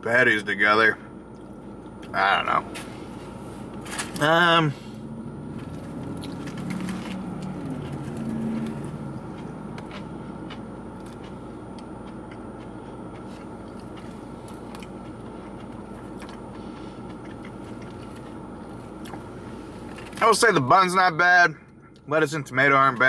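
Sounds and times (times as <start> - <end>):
car cabin hum: 0.0 - 23.0
person biting and chewing: 5.6 - 20.2.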